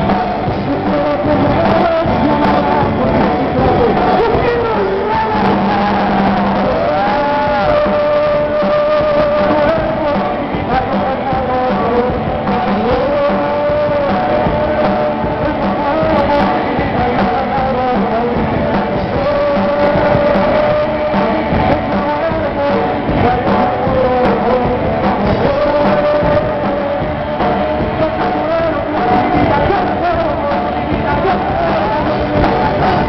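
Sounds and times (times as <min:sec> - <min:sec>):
live rock band playing: 0:00.0 - 0:33.0
person singing: 0:00.0 - 0:33.0.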